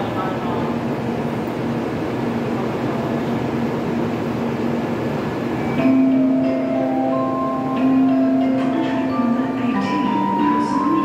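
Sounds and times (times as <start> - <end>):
station and train hum: 0.0 - 11.0
chiming departure melody: 5.6 - 11.0.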